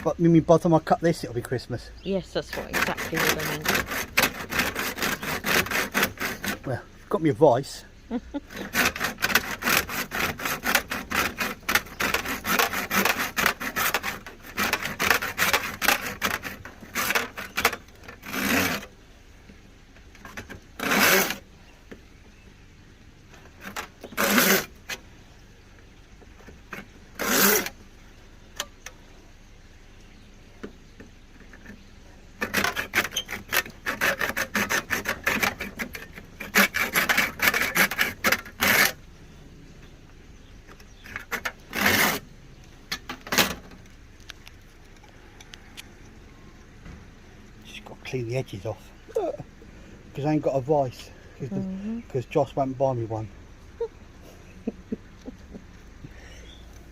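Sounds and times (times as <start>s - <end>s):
hand saw rasping through plastic: 2.4s - 6.9s, 8.4s - 19.0s, 20.2s - 21.5s, 23.4s - 25.0s, 26.4s - 27.8s, 32.4s - 39.0s, 41.0s - 42.3s, 42.9s - 43.8s.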